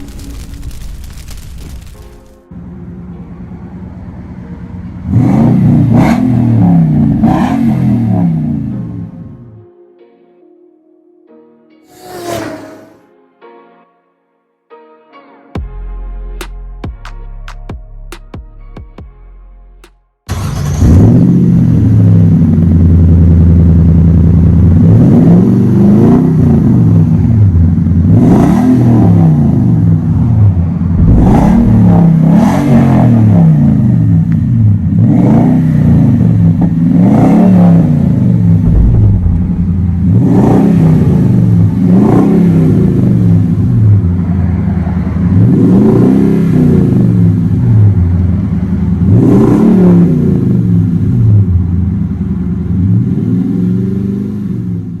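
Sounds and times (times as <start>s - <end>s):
engine idling and revving: 2.5s - 9.5s, 20.3s - 55.0s.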